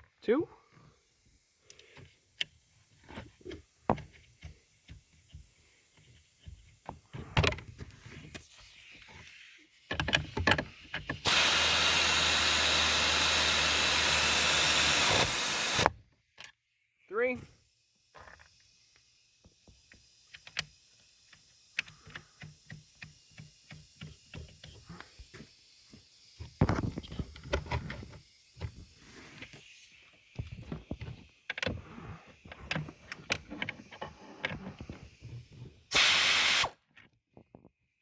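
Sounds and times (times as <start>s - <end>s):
short loud hiss: 35.9s - 36.8s.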